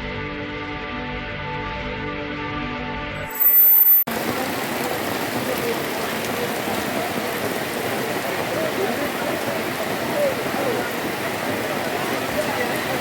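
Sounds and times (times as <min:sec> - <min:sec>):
high-pitched electronic tone: 0:03.3 - 0:04.1
heavy rain falling: 0:04.1 - 0:13.0.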